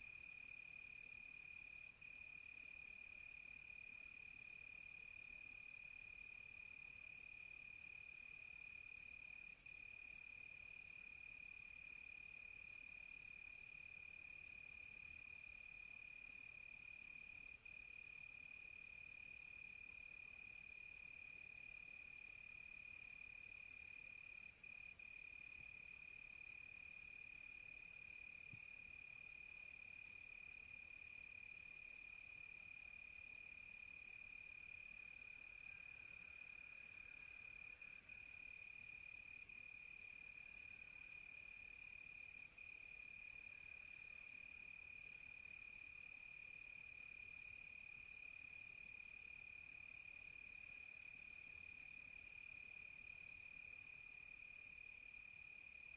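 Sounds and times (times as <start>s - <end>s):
faint insect hiss: 0.0s - 55.9s
cricket chirping in pulses: 23.4s - 47.2s.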